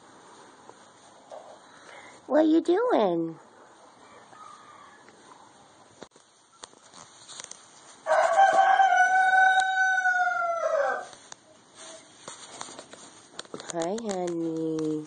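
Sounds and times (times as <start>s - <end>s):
rooster crowing: 4.0s - 5.2s, 8.0s - 11.2s
faint ticks and rustles: 11.0s - 15.0s.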